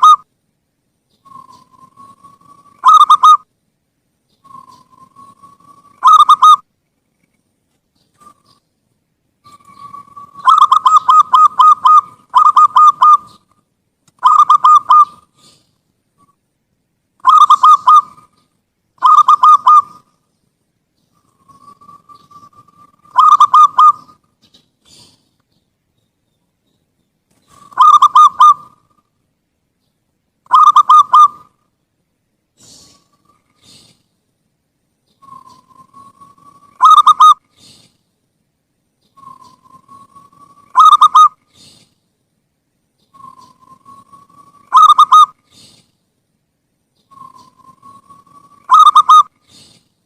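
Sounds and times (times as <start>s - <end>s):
dove cooing song: 0.0s - 0.3s, 1.2s - 3.5s, 4.3s - 6.7s, 8.0s - 8.7s, 9.4s - 13.6s, 14.2s - 16.3s, 17.2s - 20.2s, 21.0s - 25.3s, 27.3s - 29.1s, 30.5s - 31.6s, 32.6s - 34.1s, 35.1s - 37.9s, 39.0s - 42.0s, 43.0s - 45.9s, 47.0s - 49.9s.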